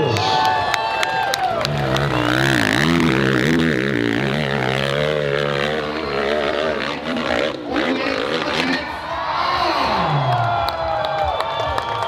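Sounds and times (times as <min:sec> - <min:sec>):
dirt bike engine revving: 0:01.4 - 0:09.1.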